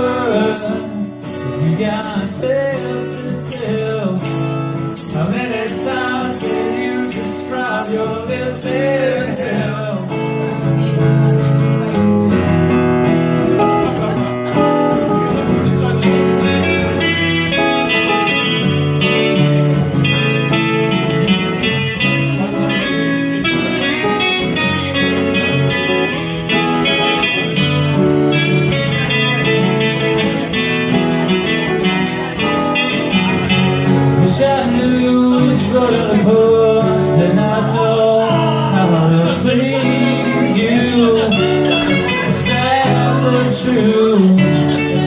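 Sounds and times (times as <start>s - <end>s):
strummed acoustic guitar: 0.0s - 45.0s.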